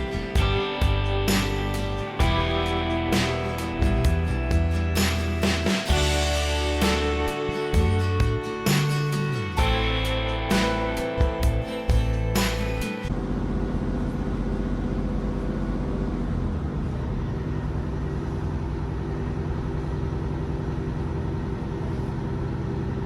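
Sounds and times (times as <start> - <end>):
acoustic guitar music: 0.0 - 13.1
diesel train rumbling: 0.0 - 23.0.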